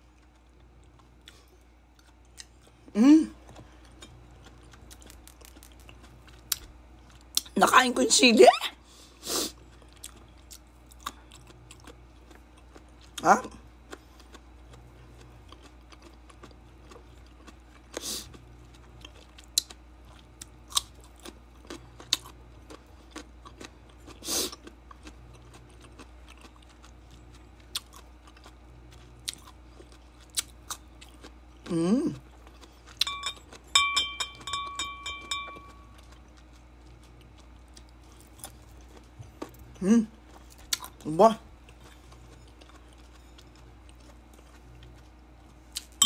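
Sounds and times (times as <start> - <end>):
person chewing juicy fruit: 0.0 - 7.6, 9.0 - 46.0
ringing clinks: 33.0 - 35.9.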